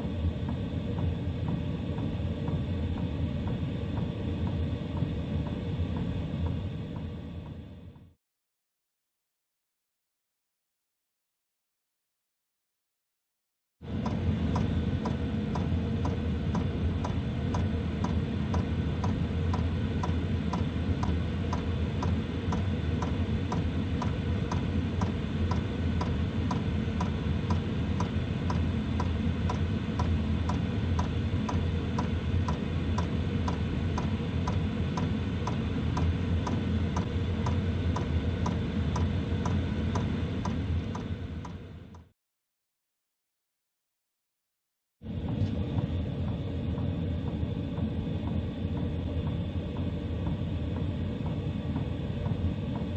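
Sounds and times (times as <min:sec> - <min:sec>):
blower fan humming: 0:13.8 - 0:42.1.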